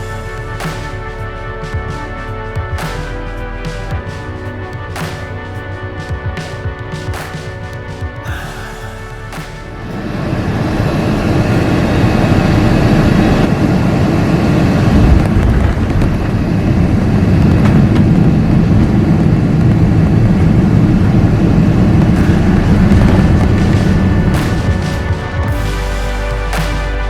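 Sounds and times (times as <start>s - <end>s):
jet airliner cabin rumble: 8.4s - 25.6s.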